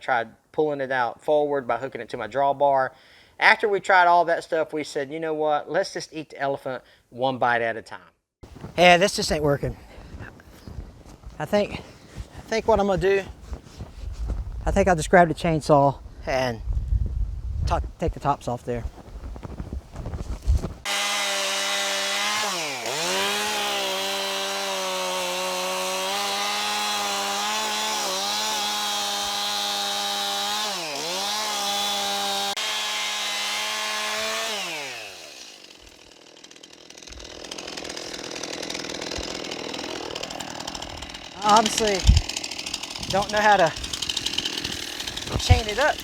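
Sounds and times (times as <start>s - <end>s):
chainsaw running at high revs: 20.8s - 46.0s.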